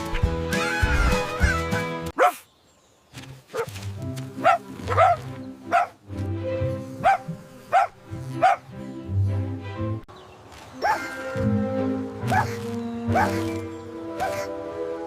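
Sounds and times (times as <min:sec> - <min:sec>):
background music: 0:00.0 - 0:02.2, 0:03.2 - 0:15.0
cartoon puppy yipping: 0:12.3 - 0:13.5, 0:14.2 - 0:14.5.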